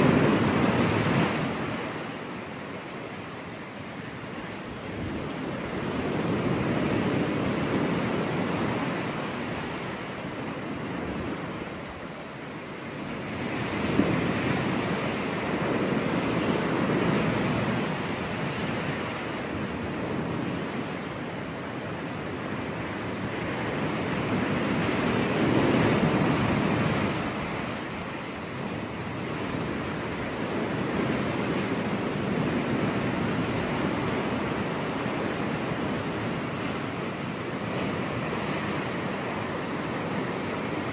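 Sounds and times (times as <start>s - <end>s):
ocean surf breaking on beach: 0.0s - 40.9s.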